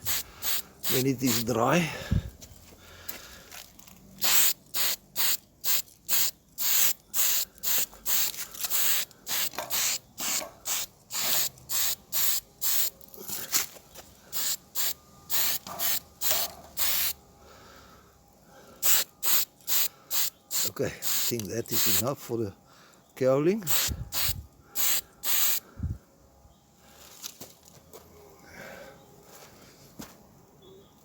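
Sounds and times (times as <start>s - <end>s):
spray paint hissing bursts: 0.0s - 1.7s, 4.2s - 13.0s, 14.3s - 17.2s, 18.8s - 22.1s, 23.6s - 25.6s.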